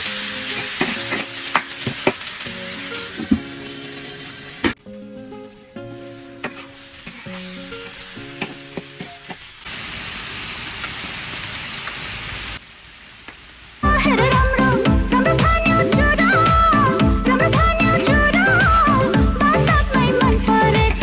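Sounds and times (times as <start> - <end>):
soft melody: 0.0 - 8.4, 13.8 - 21.0
food frying in a pan: 0.0 - 21.0
steady sizzling hiss: 0.0 - 21.0.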